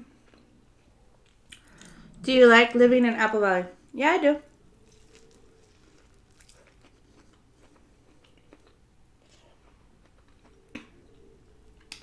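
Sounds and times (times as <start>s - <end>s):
faint chewing: 0.0s - 2.3s, 4.5s - 12.0s
soft mouth clicks: 1.5s - 2.0s, 11.8s - 12.0s.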